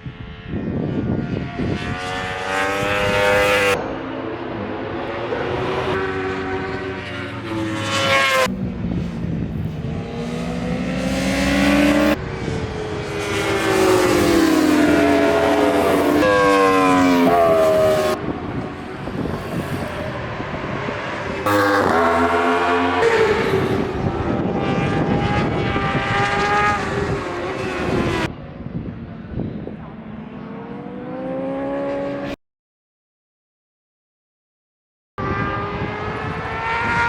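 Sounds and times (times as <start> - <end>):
superbike engines revving past: 1.4 - 28.3.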